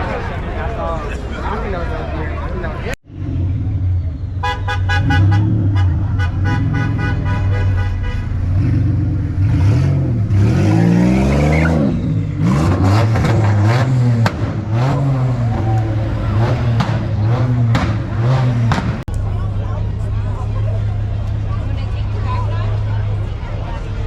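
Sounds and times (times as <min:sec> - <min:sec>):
car horn honking: 0:04.4 - 0:08.5
car engine revving: 0:08.2 - 0:19.2
sharp exhaust pops: 0:16.8 - 0:19.2.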